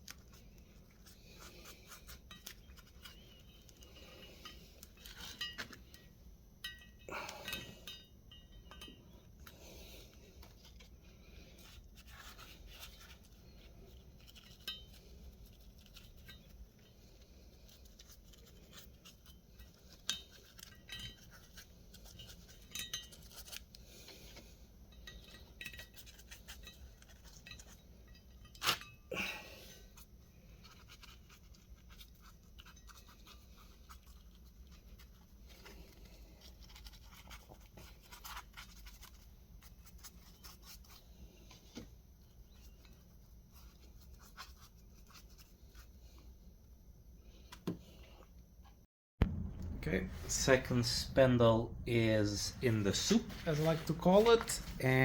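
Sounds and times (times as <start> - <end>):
scraping or brushing: 50.0 - 55.0.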